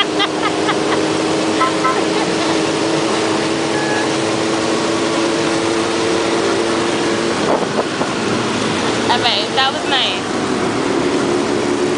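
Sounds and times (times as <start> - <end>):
motorcycle engines: 0.0 - 11.9
steady two-note tone: 1.5 - 4.4
wind noise: 7.4 - 9.0.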